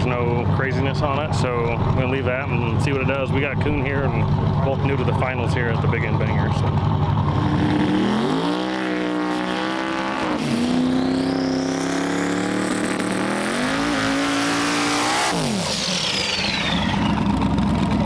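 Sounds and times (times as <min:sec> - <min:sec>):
drag car engine revving: 0:00.0 - 0:18.0
high turbo whine: 0:00.0 - 0:18.0.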